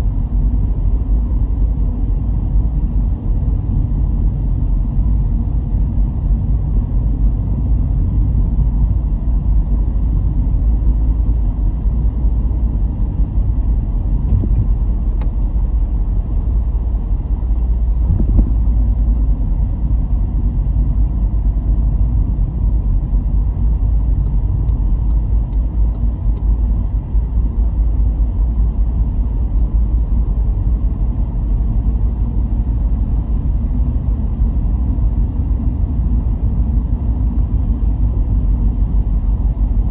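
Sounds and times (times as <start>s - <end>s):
car driving on road: 0.0s - 39.9s.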